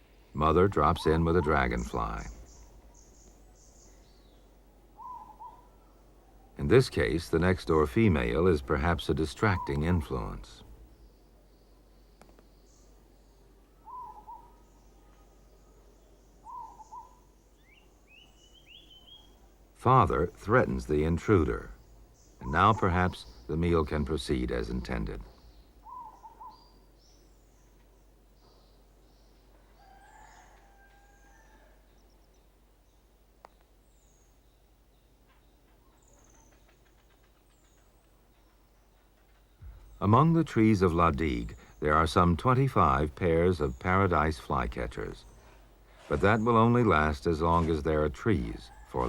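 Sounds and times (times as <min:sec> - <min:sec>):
faint bird calls: 0:00.0 - 0:07.2, 0:07.8 - 0:49.0
low whistled bird notes: 0:05.0 - 0:06.6, 0:13.7 - 0:19.4, 0:24.7 - 0:27.8.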